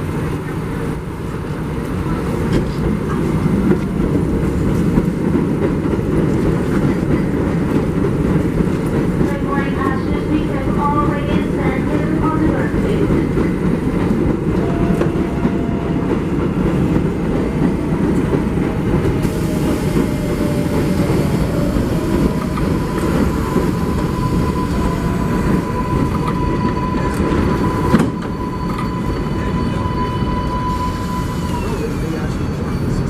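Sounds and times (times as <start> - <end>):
subway train rumbling on rails: 0.0 - 33.0
steady high tone: 20.2 - 33.0.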